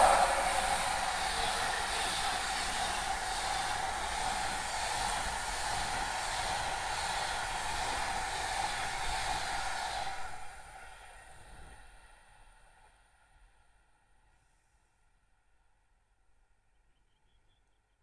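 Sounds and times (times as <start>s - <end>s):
passenger train passing: 0.0s - 12.8s.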